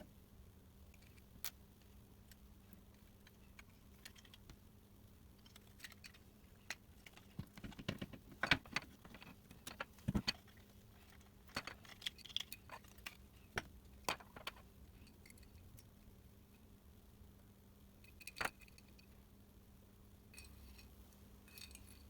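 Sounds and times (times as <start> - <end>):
small parts and tools clicking: 0.9 - 4.6, 5.3 - 16.0, 20.4 - 22.0.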